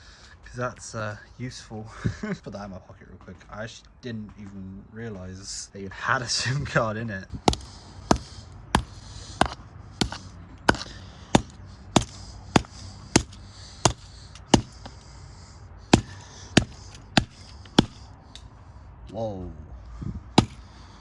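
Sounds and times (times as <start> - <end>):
hammer blows striking phone: 7.5 - 15.1, 15.9 - 18.1, 20.4 - 20.8.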